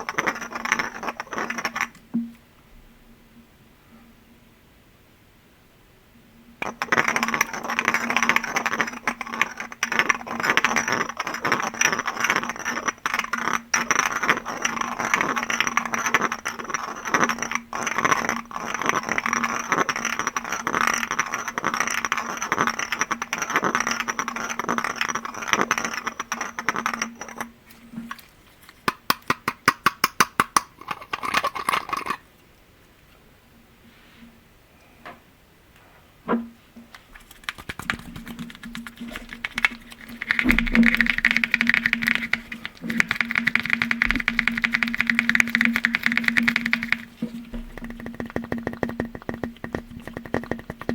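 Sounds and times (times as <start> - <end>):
fingers tapping on glass: 37.5 - 50.9.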